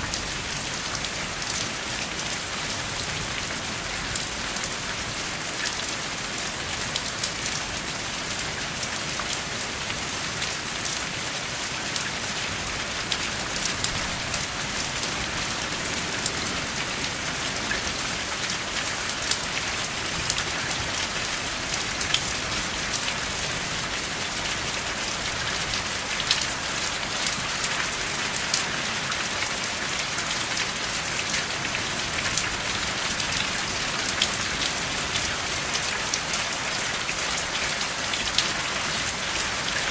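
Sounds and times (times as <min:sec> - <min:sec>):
steady rainfall hiss: 0:00.0 - 0:39.9.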